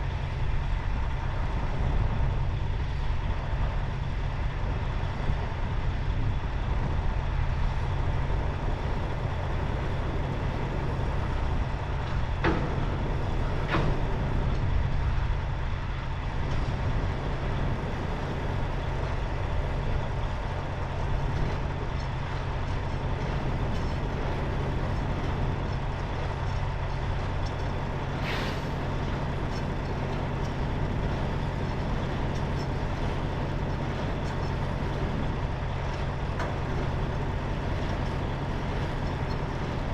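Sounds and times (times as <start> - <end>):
truck diesel engine running: 8.2 - 39.9.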